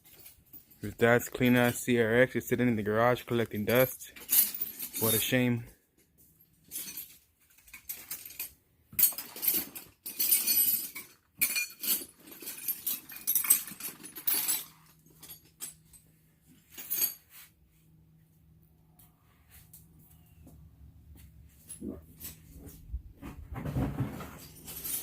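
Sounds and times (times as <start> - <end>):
faint low hum: 12.5 - 25.0.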